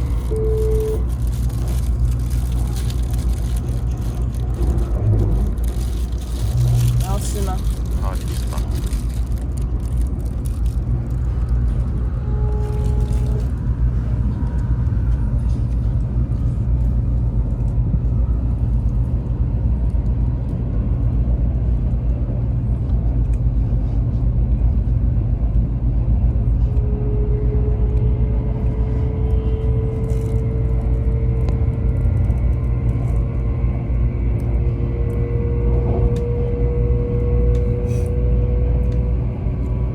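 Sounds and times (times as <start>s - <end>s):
faint train whine: 0.0s - 39.9s
train low rumble: 0.0s - 39.9s.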